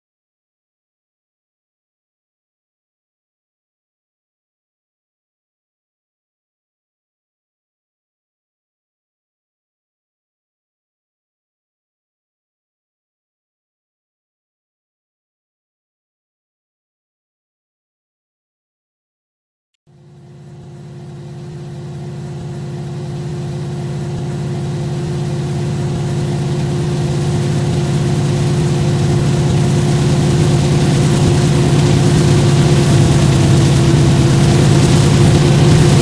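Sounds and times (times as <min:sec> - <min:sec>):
diesel locomotive engine drone: 0:19.9 - 0:36.0.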